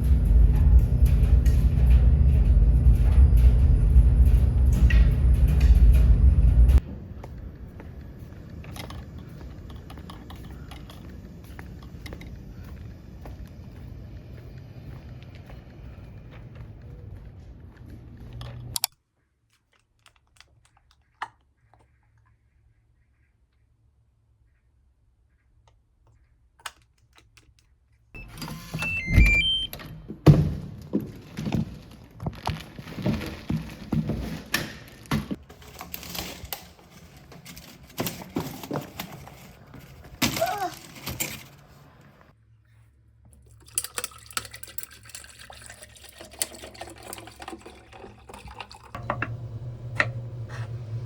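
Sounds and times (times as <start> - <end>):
steady low rumble: 0.0 - 18.7
handling noise: 26.6 - 42.3
short electronic beeps: 28.2 - 29.8.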